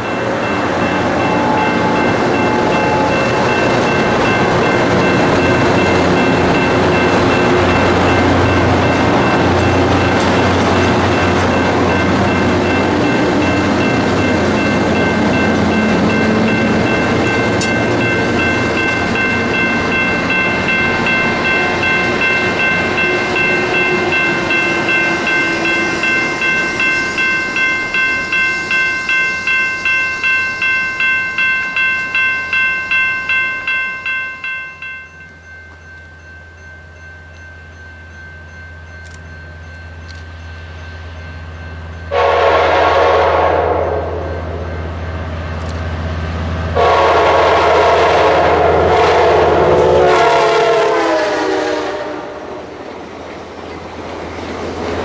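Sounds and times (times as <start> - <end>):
bell ringing: 0.0 - 42.4
train running on rails: 0.0 - 55.0
locomotive air horn blast: 42.1 - 44.3, 46.8 - 52.6.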